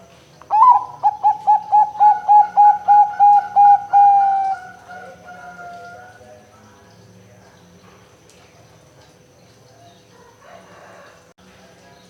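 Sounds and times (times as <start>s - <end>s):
dove cooing: 0.5s - 6.2s.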